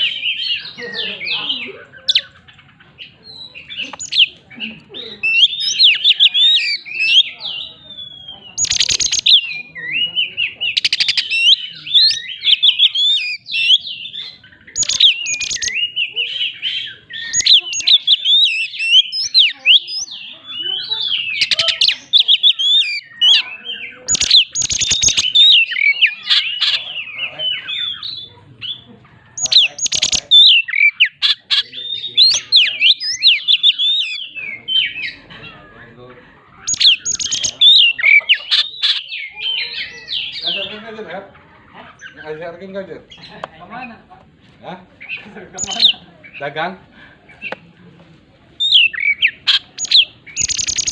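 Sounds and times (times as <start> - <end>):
bird singing whistled notes: 3.2 - 4.3, 5.2 - 26.9, 27.5 - 35.2, 36.7 - 40.6, 48.6 - 50.9.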